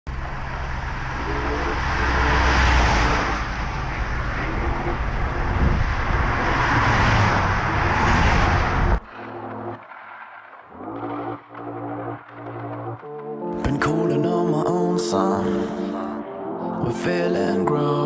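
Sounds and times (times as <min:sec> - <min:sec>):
wind noise: 0:00.1 - 0:13.1
vehicle engine running: 0:00.1 - 0:13.3.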